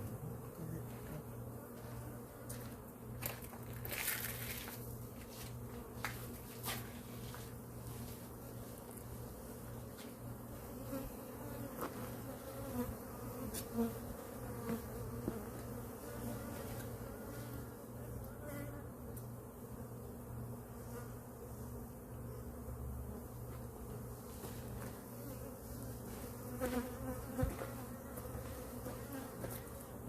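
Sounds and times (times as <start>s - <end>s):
bees buzzing: 7.5s - 30.0s.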